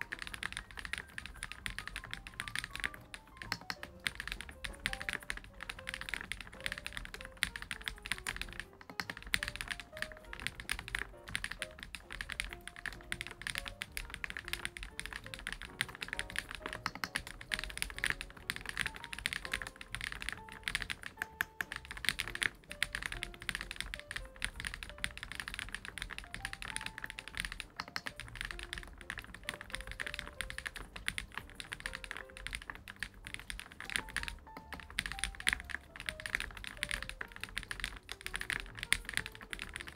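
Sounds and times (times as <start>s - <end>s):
fast mechanical keyboard typing: 0.0s - 39.9s
soft background music: 0.0s - 39.9s.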